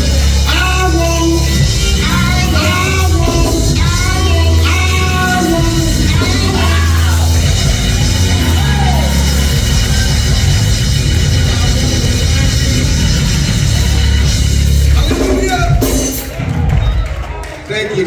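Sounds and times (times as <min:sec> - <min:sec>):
person singing: 0:00.0 - 0:10.4
band playing gospel music: 0:00.0 - 0:18.0.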